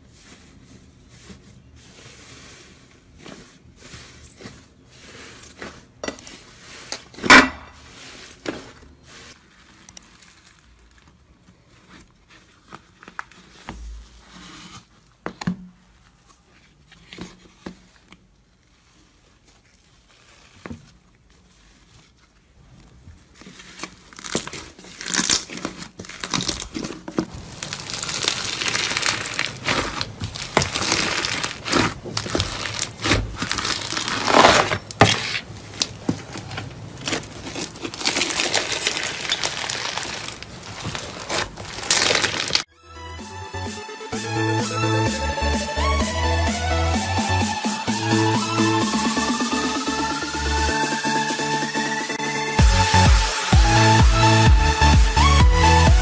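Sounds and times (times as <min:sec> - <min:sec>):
slime squished by hand: 0:23.2 - 0:42.7.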